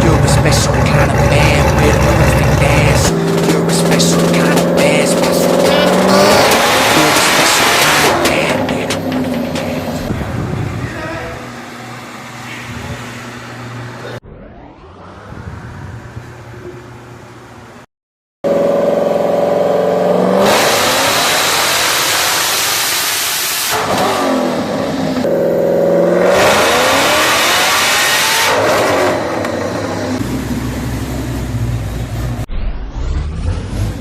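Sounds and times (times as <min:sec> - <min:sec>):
car engine revving on dynamometer: 0:00.0 - 0:34.0.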